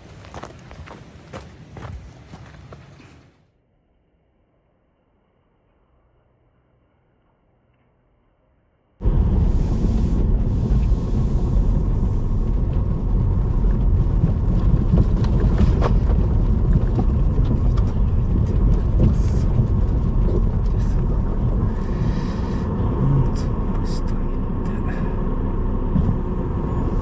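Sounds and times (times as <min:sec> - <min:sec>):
car road and engine rumble: 0:09.0 - 0:27.0
faint clicks and rattles: 0:11.8 - 0:21.9.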